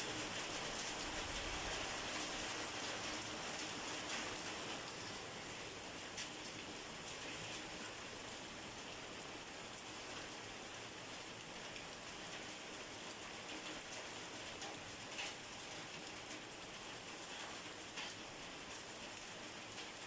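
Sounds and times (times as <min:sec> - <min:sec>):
steady rain hissing: 0:00.0 - 0:20.0
raindrops ticking: 0:13.2 - 0:20.0.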